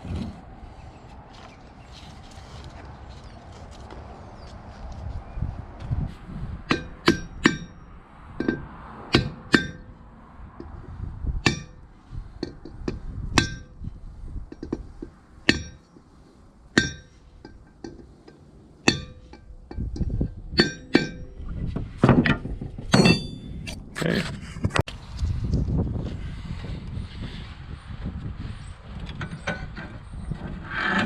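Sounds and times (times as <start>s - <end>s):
hammer striking metal: 6.7s - 10.0s, 11.4s - 11.8s, 12.4s - 13.8s, 15.4s - 15.9s, 16.7s - 18.2s, 18.8s - 21.4s, 22.9s - 23.7s.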